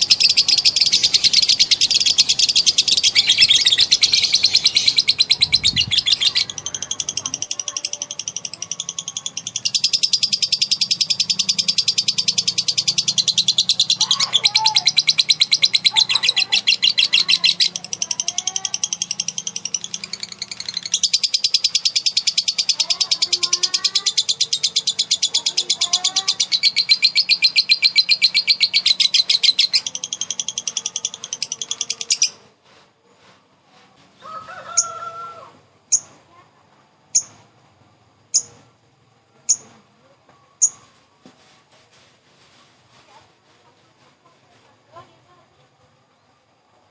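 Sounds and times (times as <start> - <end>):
bird chattering trill: 0.0 - 32.4, 38.3 - 38.6
sharp bird chirps: 0.0 - 32.4, 38.4 - 38.6.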